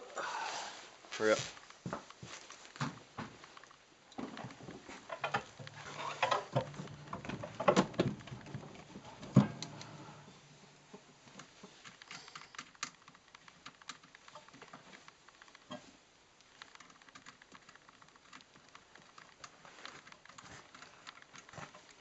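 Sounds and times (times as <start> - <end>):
tools and parts clicking: 4.4 - 10.3, 10.9 - 22.0.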